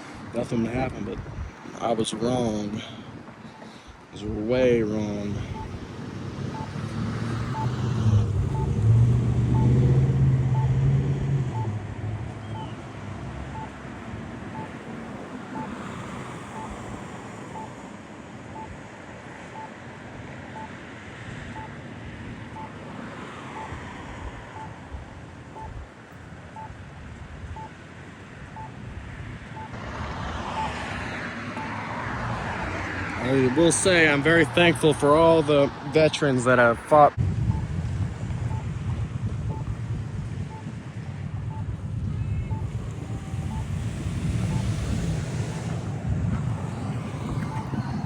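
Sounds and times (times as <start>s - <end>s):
traffic noise: 0.0s - 48.0s
wind on microphone: 0.2s - 1.8s, 37.2s - 48.0s
vehicle engine passing: 5.3s - 14.8s, 42.5s - 48.0s.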